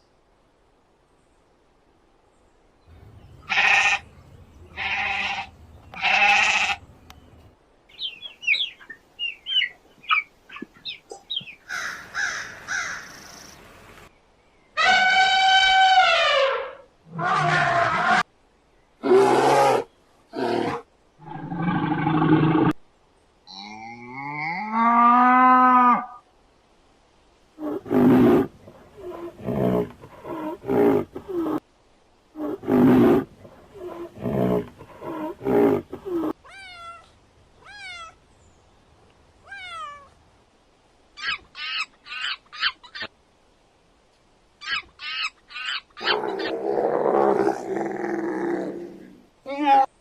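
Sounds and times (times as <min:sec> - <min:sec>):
harsh animal calls: 0:03.4 - 0:04.1, 0:44.6 - 0:49.9.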